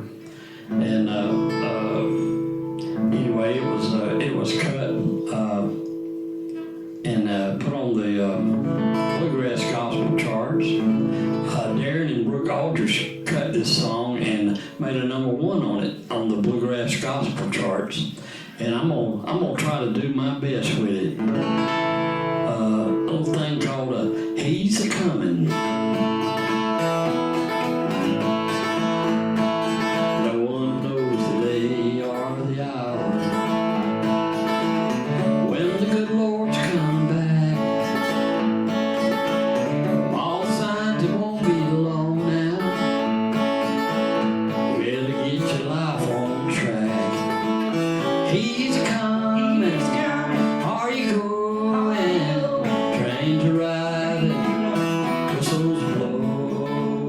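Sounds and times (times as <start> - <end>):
acoustic guitar bluegrass tune: 0.0 - 57.0.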